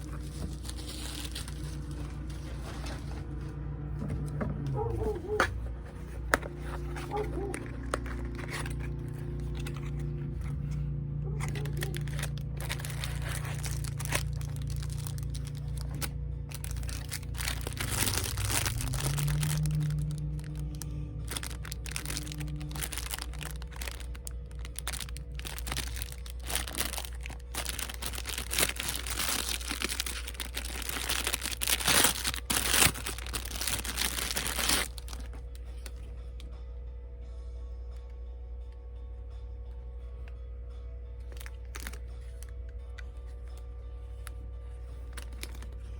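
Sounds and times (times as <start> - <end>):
packaging crinkling and tearing: 0.0 - 3.4, 6.1 - 36.1, 41.3 - 42.5, 45.1 - 45.9
quiet background music: 0.0 - 45.9.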